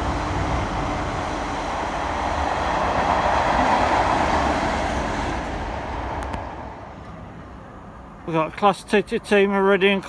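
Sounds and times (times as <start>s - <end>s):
train rumbling on rails: 0.0s - 10.0s.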